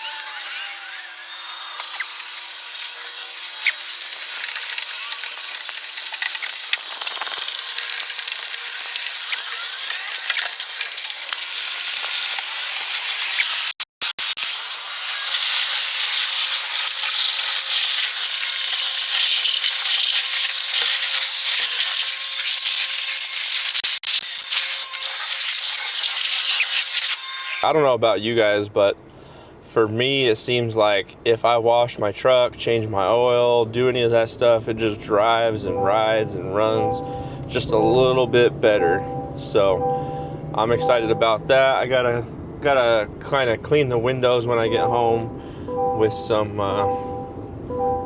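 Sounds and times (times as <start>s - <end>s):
pressure washer spraying water: 1.5s - 27.6s.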